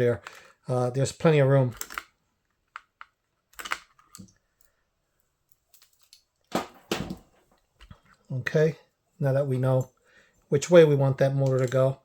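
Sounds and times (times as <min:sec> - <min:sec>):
small metal parts clicking: 0:01.7 - 0:02.1.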